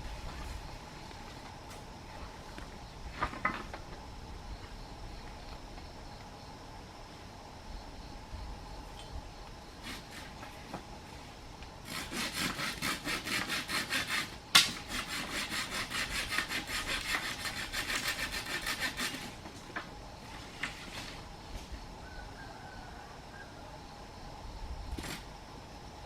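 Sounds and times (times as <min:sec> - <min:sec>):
hand saw cutting wood: 0:09.8 - 0:10.5, 0:11.8 - 0:19.5.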